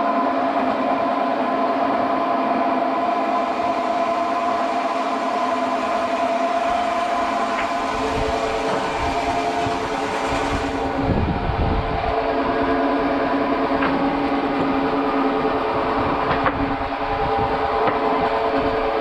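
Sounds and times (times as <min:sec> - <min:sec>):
machinery whining tones: 0:00.0 - 0:19.0
sawmill machinery drone: 0:00.0 - 0:19.0.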